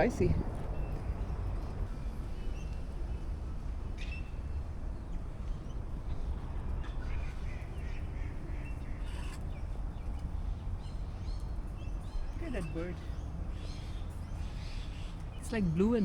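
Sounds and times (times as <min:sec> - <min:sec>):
birds calling and chirping: 0:07.5 - 0:16.0.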